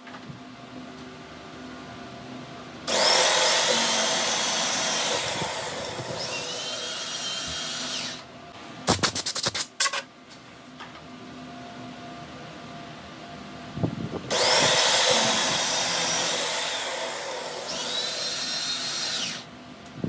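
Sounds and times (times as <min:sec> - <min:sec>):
power tool whining: 0:02.9 - 0:08.2, 0:14.3 - 0:19.5.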